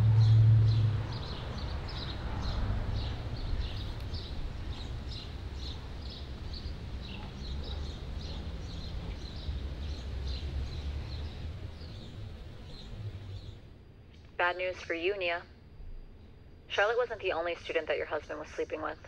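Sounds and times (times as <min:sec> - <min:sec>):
small birds chirping: 0:00.0 - 0:13.8
low background rumble: 0:00.0 - 0:19.0.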